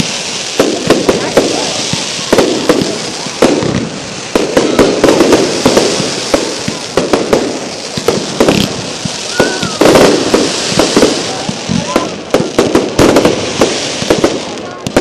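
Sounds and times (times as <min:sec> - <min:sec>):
firework whistling: 0:00.0 - 0:15.0
fireworks bangs: 0:00.0 - 0:15.0
fireworks crackling: 0:00.0 - 0:15.0.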